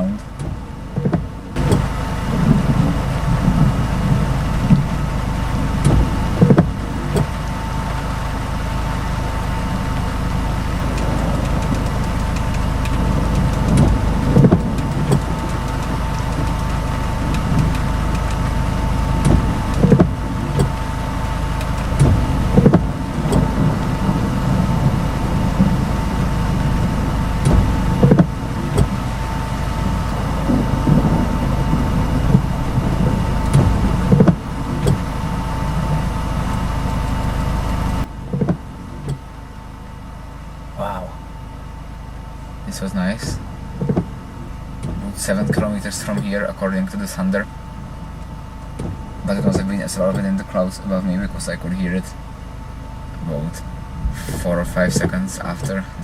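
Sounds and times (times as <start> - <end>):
short low thumps: 0.0 - 40.1, 40.7 - 46.4
car engine idling: 0.0 - 56.0.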